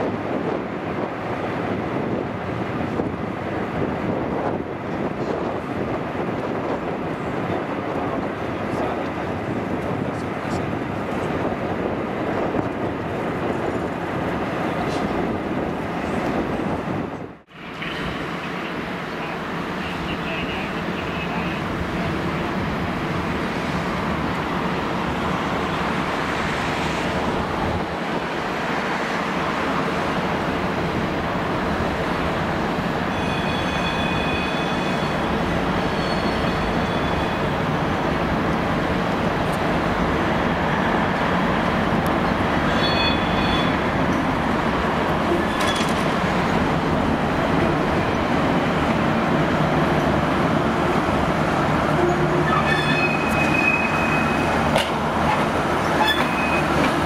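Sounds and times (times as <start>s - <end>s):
diesel railcar running: 0.0s - 57.0s
high-pitched wheel squeals: 33.1s - 37.5s, 42.7s - 43.8s, 51.9s - 54.6s, 55.9s - 56.9s.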